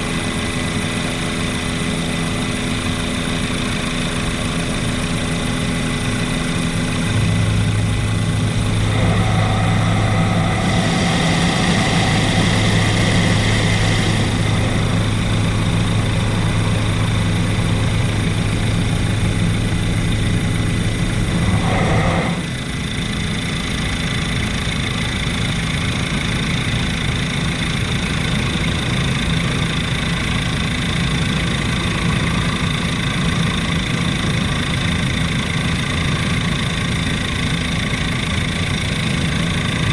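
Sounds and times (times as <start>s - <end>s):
helicopter engine and rotor drone: 0.0s - 39.9s
high whine: 4.4s - 25.6s
low hum: 5.2s - 24.4s.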